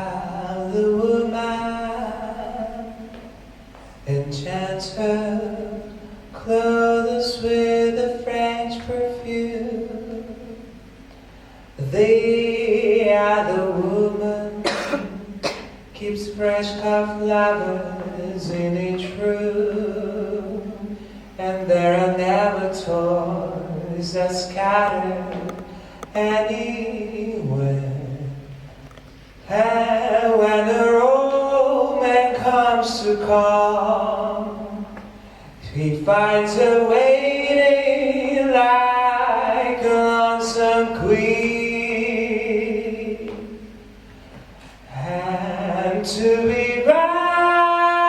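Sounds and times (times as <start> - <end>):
person singing wordless notes: 11.7 - 28.5.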